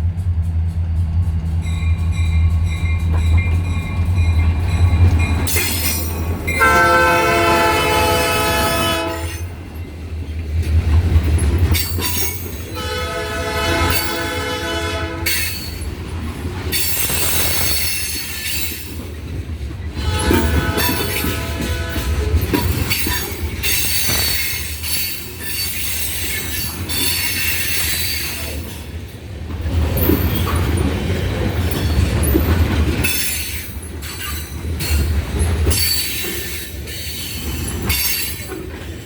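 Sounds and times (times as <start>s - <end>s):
locomotive air horn blasts: 6.6s - 9.5s, 12.8s - 15.5s, 20.0s - 22.4s.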